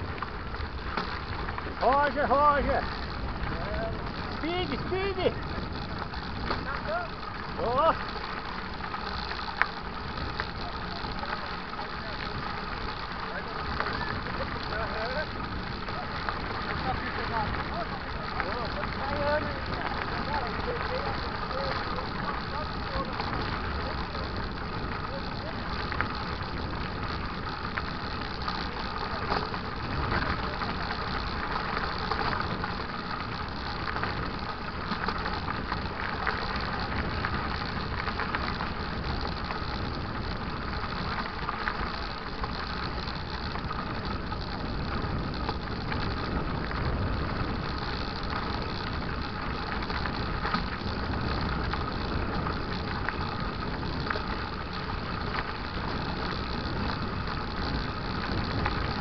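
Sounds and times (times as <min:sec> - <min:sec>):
bike rattling: 0:00.0 - 0:59.0
tyres rumbling on dirt: 0:00.0 - 0:59.0.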